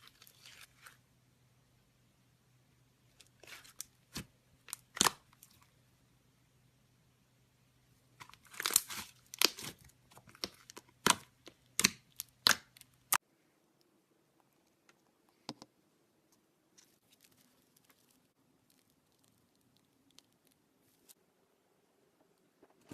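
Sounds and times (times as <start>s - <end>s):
slime crackling and popping: 3.2s - 5.6s, 8.2s - 13.2s, 17.1s - 21.2s.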